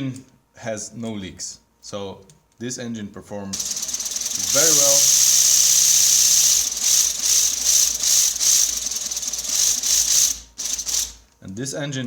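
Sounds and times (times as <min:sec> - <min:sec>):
toy pneumatic engine running: 0:03.6 - 0:11.2
valve exhaust hissing and rattling: 0:03.6 - 0:11.3.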